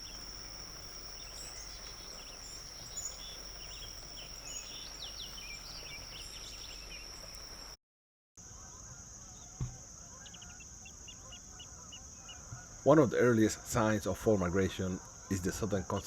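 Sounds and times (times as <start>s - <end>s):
bird chirps and calls: 0.0s - 7.7s
high-pitched insect drone: 0.0s - 7.8s.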